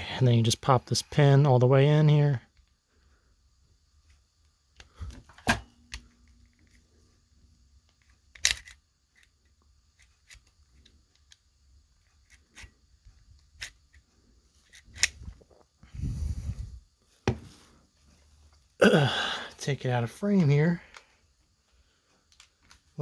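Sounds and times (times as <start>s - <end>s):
sharp metallic clicks of pistol parts: 7.8s - 15.3s, 20.9s - 21.1s, 22.3s - 22.9s.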